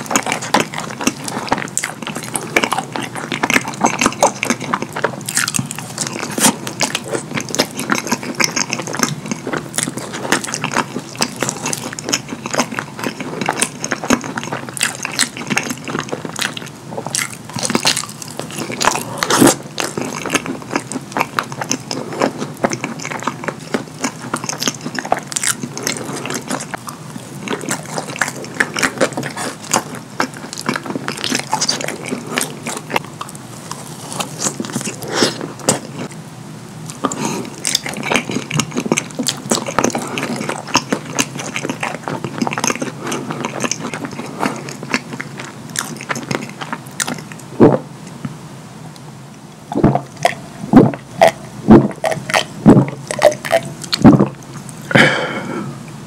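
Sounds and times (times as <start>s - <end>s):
chewing and wet mouth smacking: 0.0s - 36.2s, 36.9s - 48.3s, 49.7s - 54.9s.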